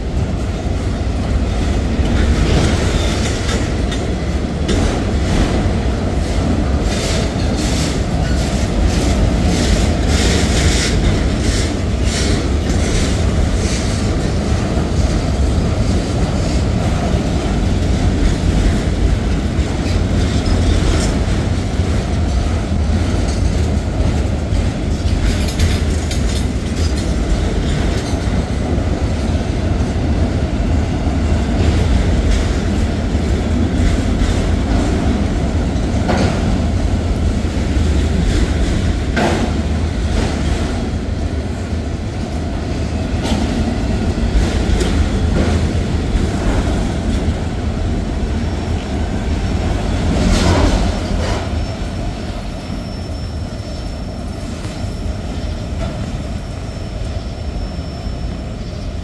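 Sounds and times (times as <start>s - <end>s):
train wheels rumbling on rail: 0.0s - 59.0s
wheels clicking over rail joints: 1.6s - 29.3s.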